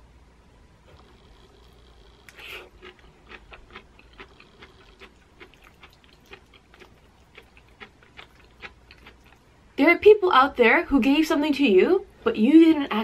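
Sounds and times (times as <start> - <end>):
close-mouthed chewing: 0.9 - 9.5.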